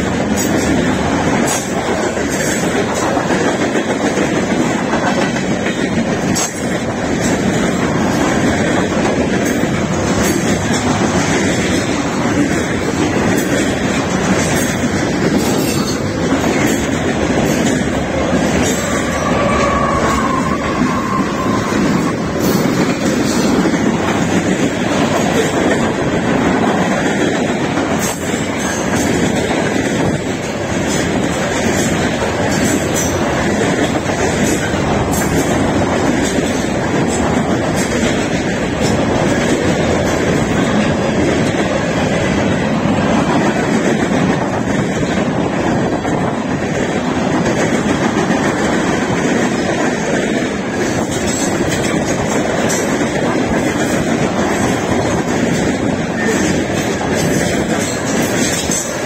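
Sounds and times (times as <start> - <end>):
train wheels rumbling on rail: 0.0 - 59.0
wheel squeal: 18.8 - 22.3.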